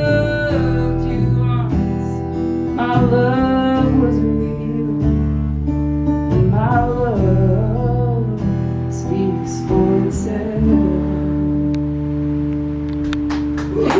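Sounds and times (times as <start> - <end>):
person singing: 0.0 - 5.1
acoustic guitar: 0.0 - 13.9.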